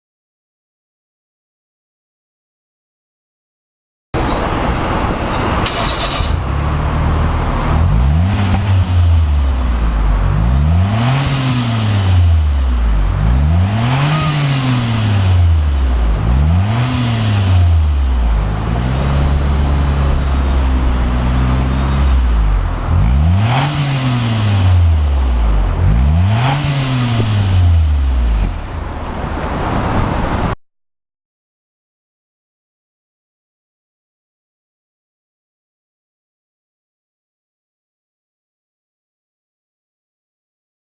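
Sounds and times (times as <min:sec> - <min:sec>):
car engine idling and revving: 0:04.2 - 0:30.6.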